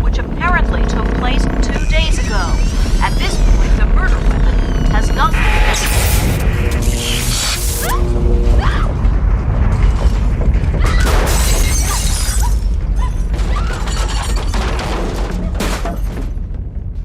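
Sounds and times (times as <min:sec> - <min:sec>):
dramatic music: 0:00.0 - 0:13.4
deep continuous rumble: 0:00.0 - 0:17.0
crashes and shattering: 0:09.4 - 0:16.7.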